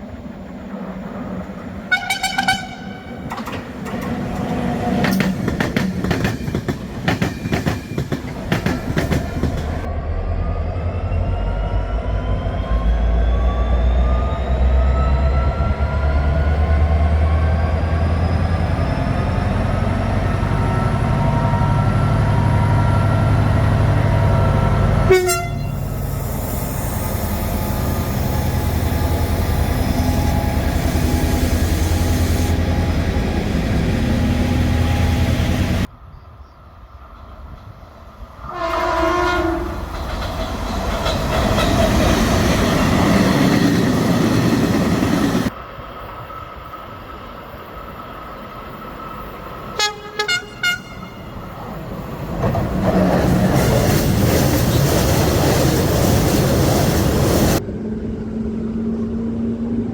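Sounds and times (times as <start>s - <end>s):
trains rumbling past: 0.0s - 59.9s
locomotive horn blast: 1.9s - 3.3s, 25.0s - 26.1s, 38.4s - 39.9s, 49.8s - 51.4s.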